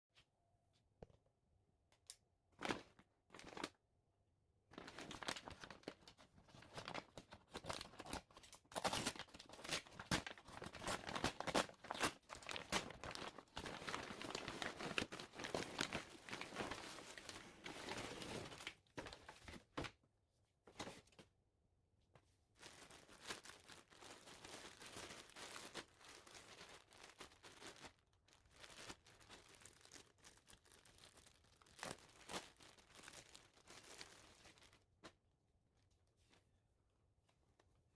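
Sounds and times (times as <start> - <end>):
packaging crinkling and tearing: 4.8 - 19.3, 22.6 - 34.8.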